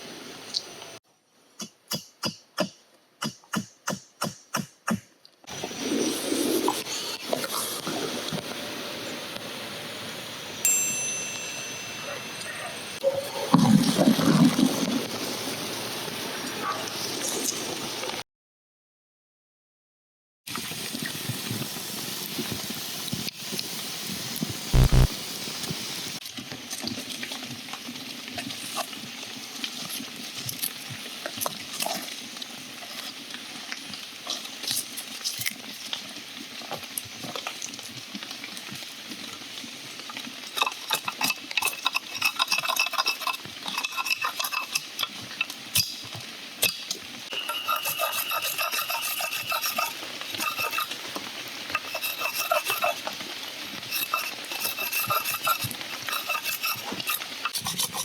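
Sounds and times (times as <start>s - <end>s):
metal clinks: 10.7s - 12.6s
food sizzling: 20.5s - 26.3s, 27.2s - 58.0s
utensil scraping in a pan: 40.3s - 58.0s.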